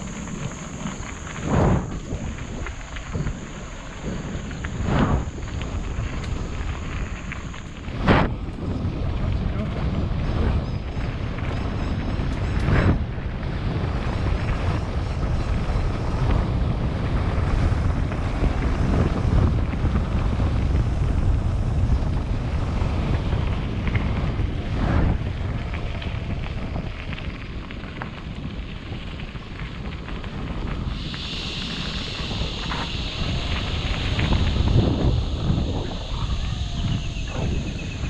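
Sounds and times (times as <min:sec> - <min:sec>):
wind buffeting microphone: 0:00.0 - 0:38.0
high buzz: 0:30.9 - 0:38.0.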